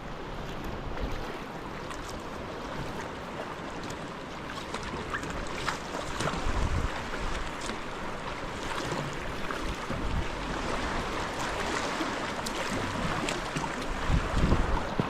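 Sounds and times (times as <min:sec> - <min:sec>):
sea water lapping: 0:00.0 - 0:15.0
wind buffeting microphone: 0:06.2 - 0:07.5, 0:12.8 - 0:15.0.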